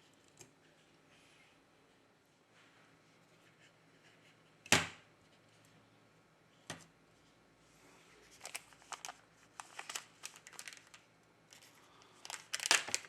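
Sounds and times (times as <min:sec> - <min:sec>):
plastic crinkling: 0:08.2 - 0:13.0.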